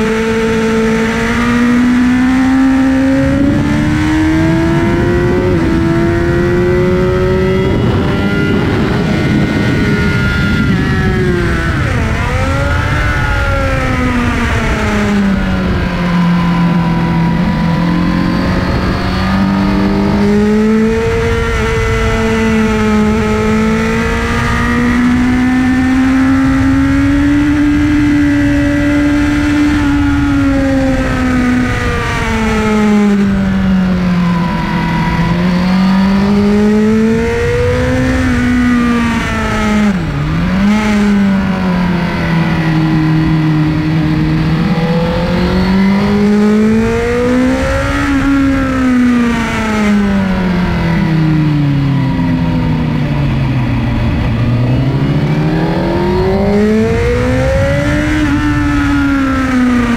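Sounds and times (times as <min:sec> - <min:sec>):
motorcycle engine revving: 0:00.0 - 0:59.9
wind and road noise: 0:00.0 - 0:59.9.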